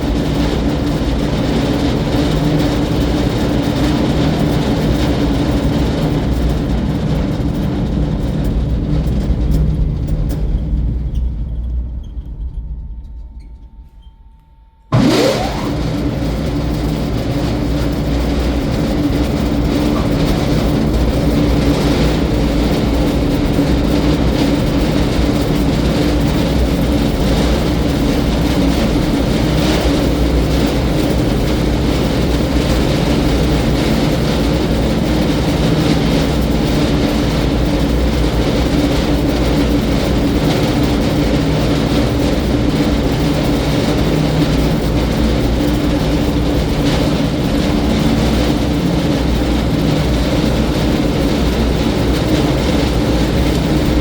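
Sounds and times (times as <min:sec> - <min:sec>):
wood grinder droning: 0:14.9 - 0:17.1.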